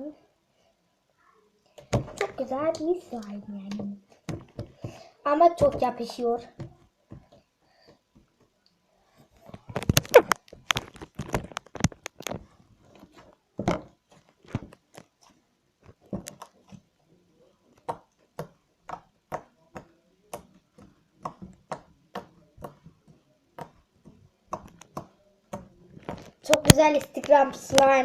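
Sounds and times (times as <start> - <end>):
sticky slime popping and clicking: 9.7 - 12.4, 23.6 - 28.0.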